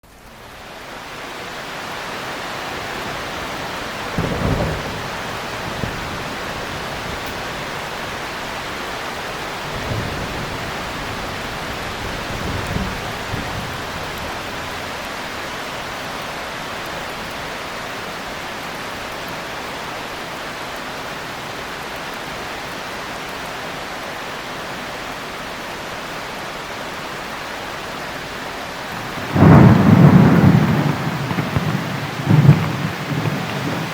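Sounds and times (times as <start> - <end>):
heavy rain: 0.0 - 33.9
distant thunder rumbles: 4.0 - 8.2, 9.5 - 15.0, 28.9 - 33.9.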